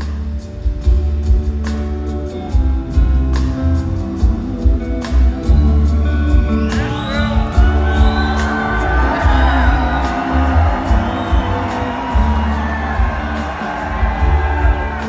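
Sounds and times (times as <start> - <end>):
live rock band playing: 0.0 - 15.0
audience whooping and cheering: 6.6 - 15.0.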